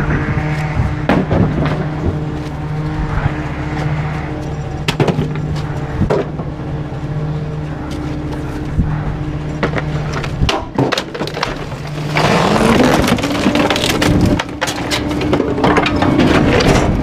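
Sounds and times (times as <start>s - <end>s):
truck engine running: 0.0s - 17.0s
garbage truck packer crushing waste: 9.6s - 17.0s
wood cracking and splintering: 9.6s - 17.0s.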